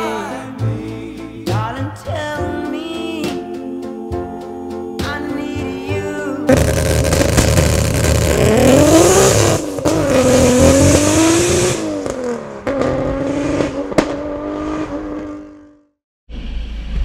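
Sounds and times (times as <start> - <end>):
exhaust pop: 6.5 - 14.4
car engine accelerating hard: 6.5 - 15.9.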